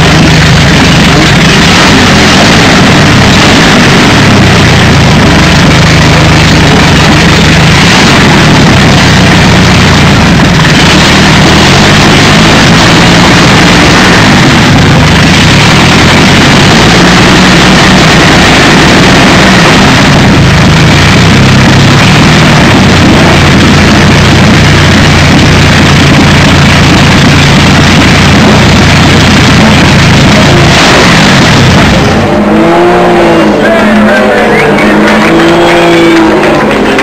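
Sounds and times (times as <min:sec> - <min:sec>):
aero engine idling: 0:00.0 - 0:37.0.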